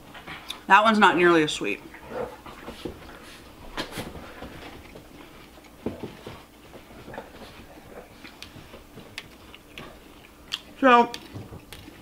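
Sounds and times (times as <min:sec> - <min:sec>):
person chewing cereal: 0:04.3 - 0:12.0.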